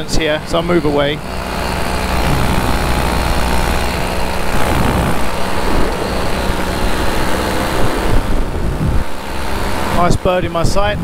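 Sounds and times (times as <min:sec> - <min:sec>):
paramotor engine running: 0:00.0 - 0:11.0.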